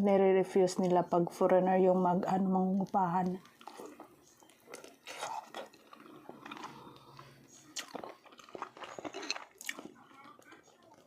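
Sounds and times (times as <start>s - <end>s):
person chewing food: 2.8s - 11.0s.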